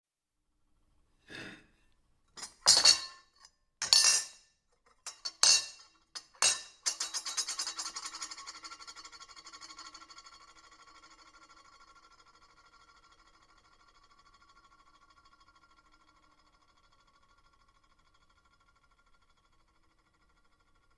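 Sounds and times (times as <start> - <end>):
silverware clinking on a plate: 2.4 - 4.4, 5.0 - 8.4.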